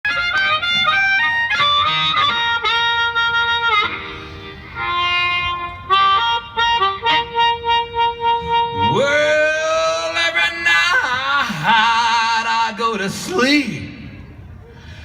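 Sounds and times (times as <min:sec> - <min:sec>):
harmonica: 0:00.0 - 0:09.8
blues band playing: 0:00.0 - 0:10.0.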